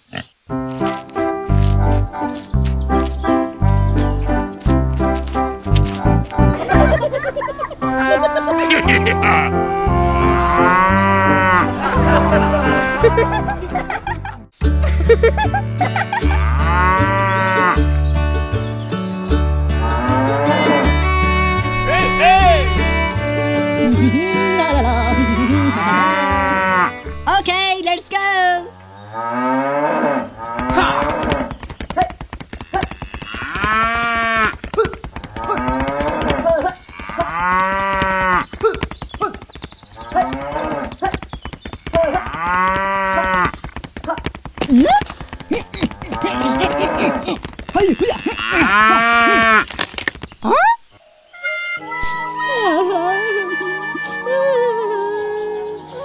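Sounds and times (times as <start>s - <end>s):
cow mooing: 8.6s - 13.0s, 19.8s - 24.6s, 25.4s - 27.0s, 28.7s - 31.4s, 46.0s - 49.6s
background music with bass line: 8.6s - 27.3s.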